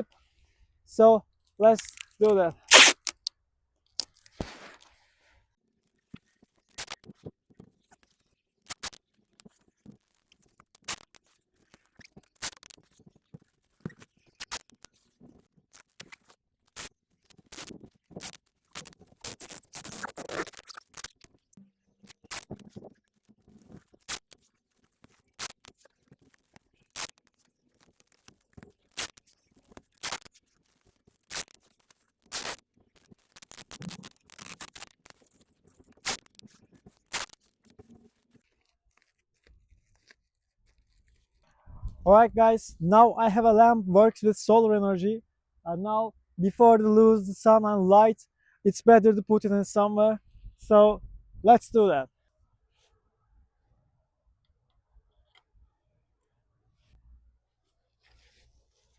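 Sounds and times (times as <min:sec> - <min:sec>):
adhesive tape pulled off roll: 0:01.7 - 0:03.3, 0:04.0 - 0:05.0, 0:06.2 - 0:21.4, 0:22.0 - 0:41.4
scratchy handling noise: 0:05.9 - 0:42.0, 0:57.6 - 0:58.9.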